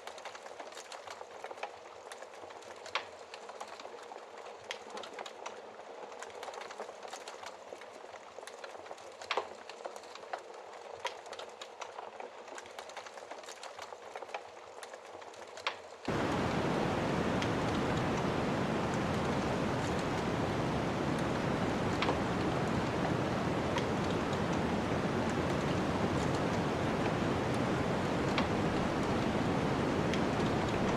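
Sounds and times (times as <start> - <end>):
wood fire crackling: 0.2 - 30.9
snowstorm wind rushing: 16.1 - 30.9.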